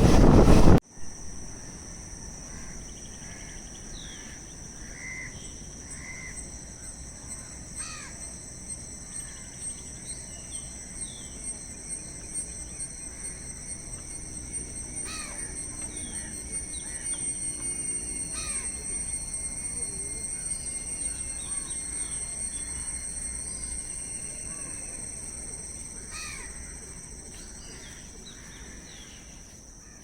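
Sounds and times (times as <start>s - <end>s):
insects droning: 0.0s - 30.0s
crows cawing: 26.1s - 26.7s.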